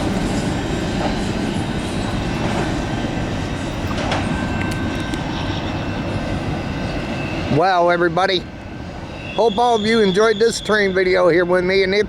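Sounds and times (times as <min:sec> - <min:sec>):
train wheels rumbling on rails: 0:00.0 - 0:12.0
faint high squeals: 0:00.2 - 0:07.9, 0:08.6 - 0:11.6.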